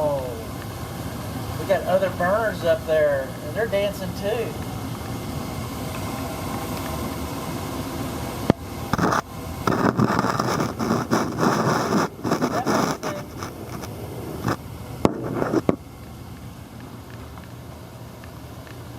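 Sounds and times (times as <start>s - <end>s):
gas furnace hissing: 0.0s - 18.9s
scraping and rustling with knocks: 9.0s - 15.8s.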